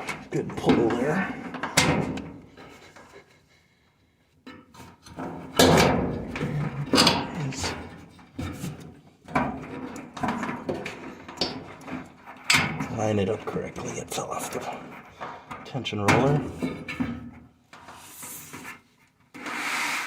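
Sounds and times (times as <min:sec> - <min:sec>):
knocks and clunks in metal cabinet: 0:05.2 - 0:07.9, 0:16.0 - 0:17.3.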